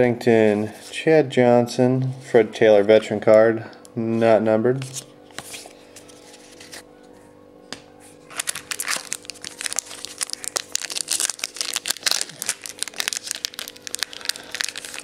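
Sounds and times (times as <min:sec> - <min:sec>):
card pack wrapper crinkling: 0:08.3 - 0:15.0.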